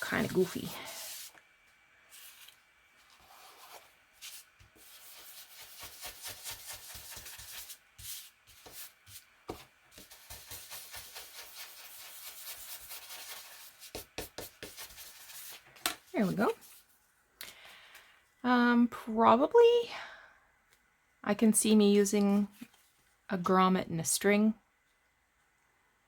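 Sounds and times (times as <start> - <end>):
hands rubbing paper: 2.1 - 9.3, 9.9 - 16.9.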